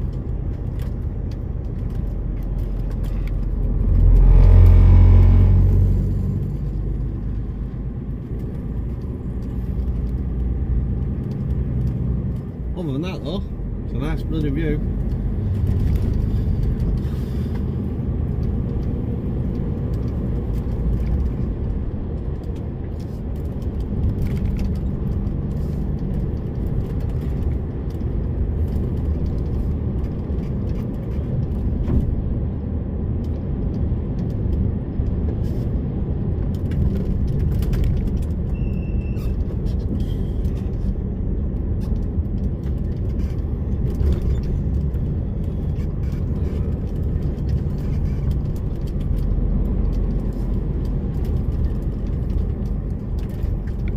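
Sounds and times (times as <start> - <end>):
lorry diesel engine running: 0.0 - 32.5
road rumble: 0.0 - 53.9
short high squeak: 38.5 - 39.4.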